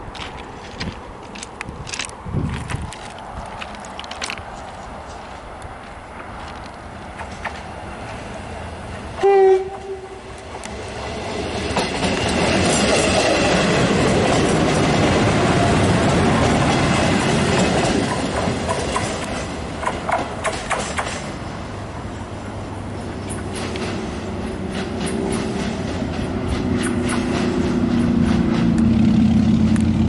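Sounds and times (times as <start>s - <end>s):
wheels clacking over rail joints: 0.0s - 8.4s, 9.2s - 30.0s
diesel train passing: 0.0s - 30.0s
horn blast: 9.2s - 10.3s.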